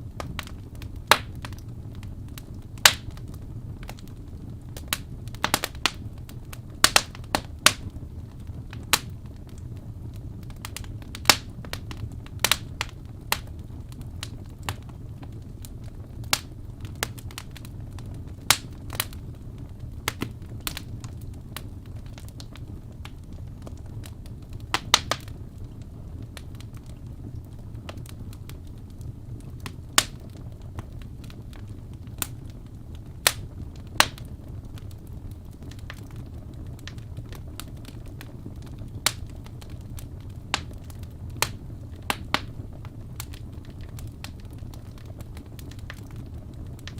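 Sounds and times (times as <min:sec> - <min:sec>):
fire crackling and popping: 0:00.0 - 0:46.9
low rumble of flames: 0:00.0 - 0:46.9.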